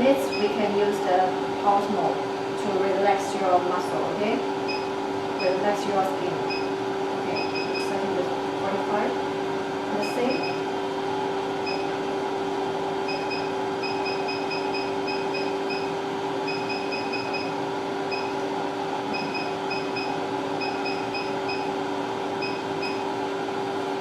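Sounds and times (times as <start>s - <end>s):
machine humming: 0.0s - 24.0s.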